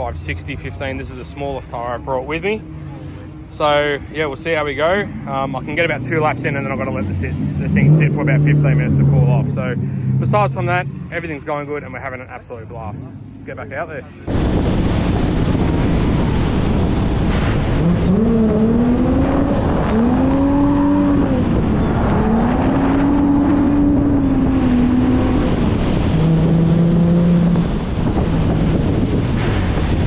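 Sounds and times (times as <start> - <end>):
car engine revving: 0.0 - 30.0
tyres and air rushing: 4.2 - 11.4, 14.2 - 30.0.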